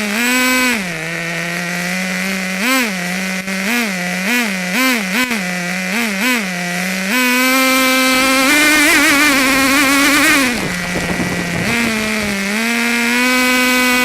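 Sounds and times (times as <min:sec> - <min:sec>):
small engine revving: 0:00.0 - 0:14.0.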